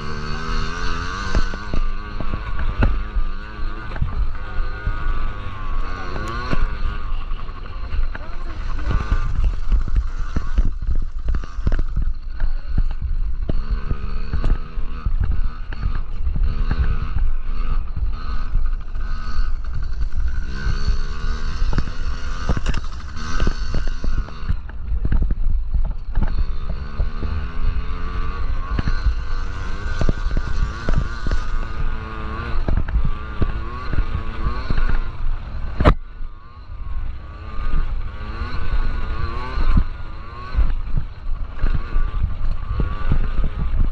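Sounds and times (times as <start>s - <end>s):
mini dirt bike engines revving: 0.0s - 43.9s
wind buffeting on microphone: 36.8s - 43.9s.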